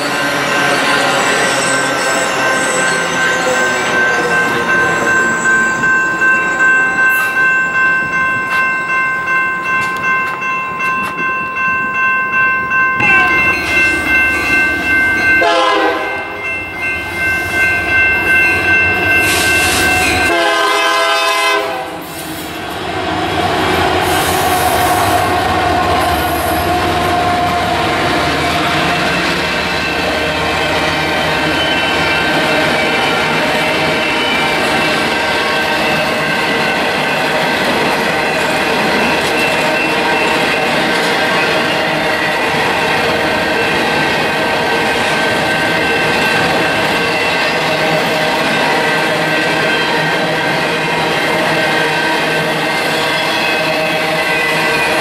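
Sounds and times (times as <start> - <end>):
train wheel squeal: 0.0 - 8.9, 16.8 - 20.4, 24.0 - 27.7, 28.6 - 55.0
diesel locomotives rumbling: 0.0 - 55.0
train horn: 15.4 - 16.3, 20.2 - 22.2.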